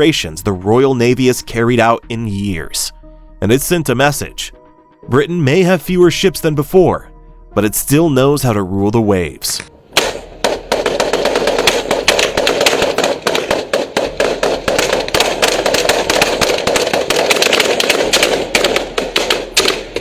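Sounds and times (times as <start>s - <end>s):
rapid gunfire: 10.0s - 20.0s.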